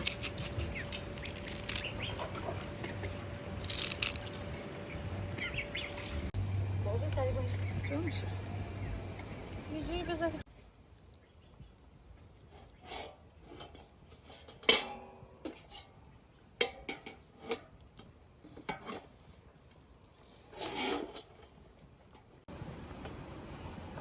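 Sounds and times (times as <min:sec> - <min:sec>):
objects scraping and rubbing: 0:00.0 - 0:06.4, 0:12.4 - 0:14.8, 0:20.2 - 0:21.8.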